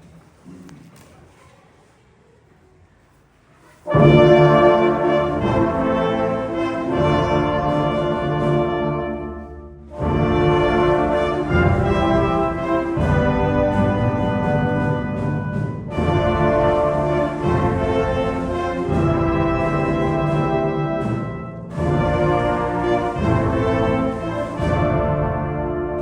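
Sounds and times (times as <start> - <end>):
symphony orchestra with brass: 3.6 - 26.0.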